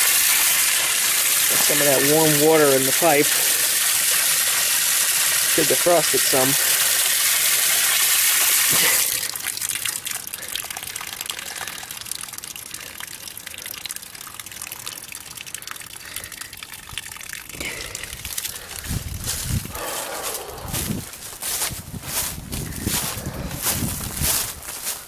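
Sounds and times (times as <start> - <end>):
water gushing from tap: 0.0 - 19.5.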